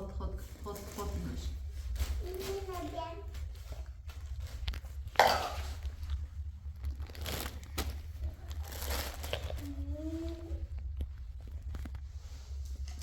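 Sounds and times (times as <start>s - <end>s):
crinkling and rustling: 0.0s - 13.0s
low rumble: 3.0s - 13.0s.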